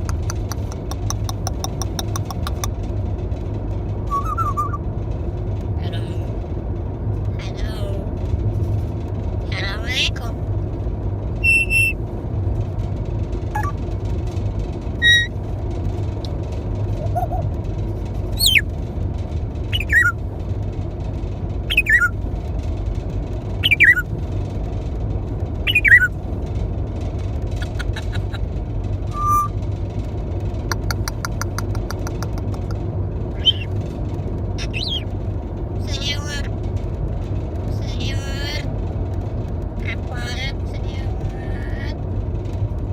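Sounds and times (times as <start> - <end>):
steady low rumble: 0.0 - 42.9
parrot whistling and chirping: 4.1 - 4.8, 11.4 - 12.0, 13.5 - 13.8, 15.0 - 15.3, 17.0 - 17.4, 18.4 - 18.6, 19.7 - 20.2, 21.7 - 22.2, 23.6 - 24.0, 25.6 - 26.1, 29.1 - 29.6, 33.4 - 33.7, 34.6 - 35.1.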